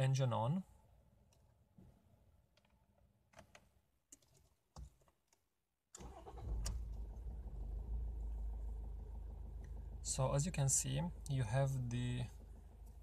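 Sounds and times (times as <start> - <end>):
car engine starting and idling: 6.0 - 13.0.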